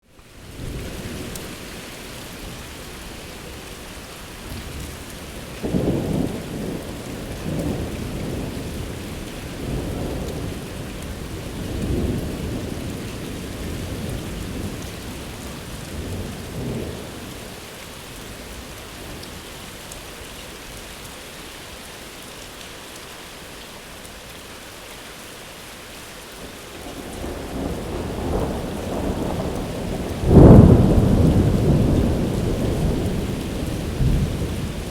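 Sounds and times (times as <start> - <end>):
rain hissing: 0.1 - 34.9
thunder rolling: 27.0 - 34.9.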